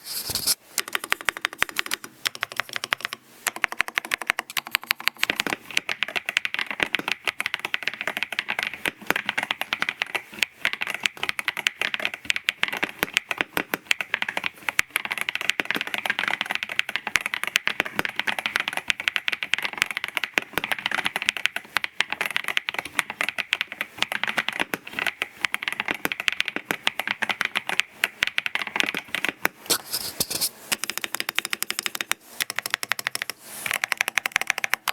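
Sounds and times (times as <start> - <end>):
fast mechanical keyboard typing: 0.4 - 34.9.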